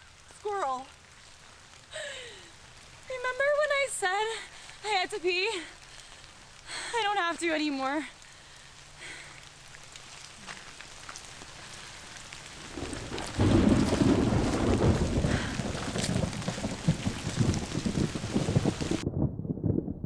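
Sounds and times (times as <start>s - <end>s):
heavy rain: 0.0s - 19.0s
rumble of thunder: 12.5s - 20.0s.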